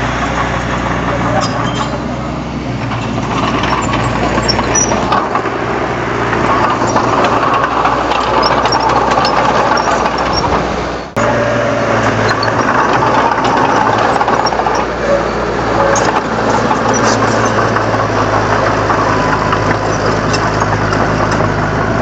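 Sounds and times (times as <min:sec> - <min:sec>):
bulldozer diesel engine running: 0:00.0 - 0:22.0
light mechanical clicks and clanks: 0:06.4 - 0:10.6.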